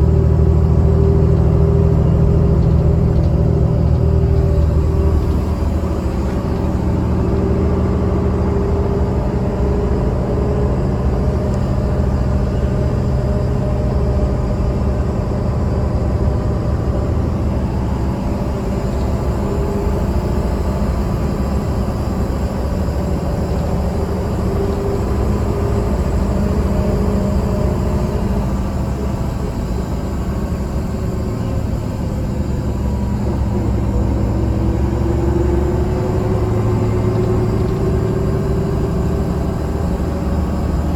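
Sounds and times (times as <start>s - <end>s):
bus diesel engine running: 0.0s - 40.9s
road noise: 0.0s - 40.9s.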